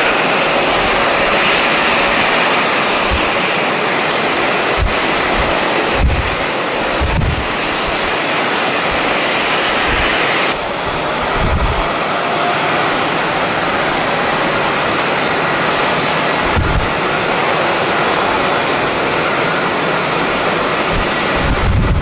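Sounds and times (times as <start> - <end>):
wind buffeting microphone: 0.0 - 12.0, 16.1 - 17.4, 20.7 - 22.0
jet airliner rush: 0.0 - 22.0.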